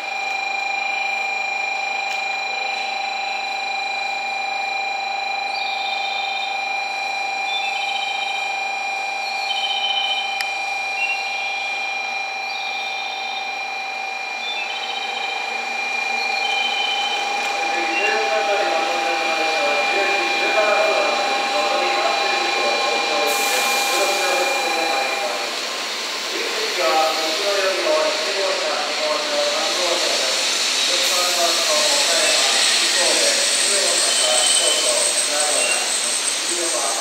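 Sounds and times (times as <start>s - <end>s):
train hiss and hum: 14.4s - 37.0s.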